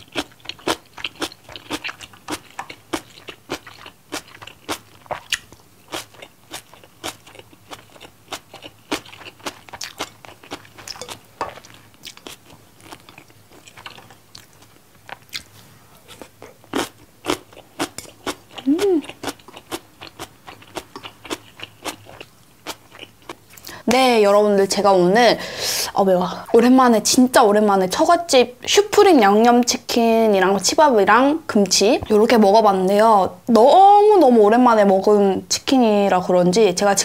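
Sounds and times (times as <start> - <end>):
person chewing crunchy food: 0.0 - 23.8.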